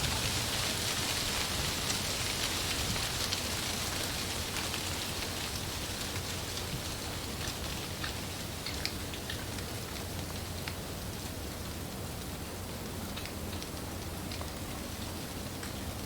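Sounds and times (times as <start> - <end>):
wind rustling leaves: 0.0 - 16.0.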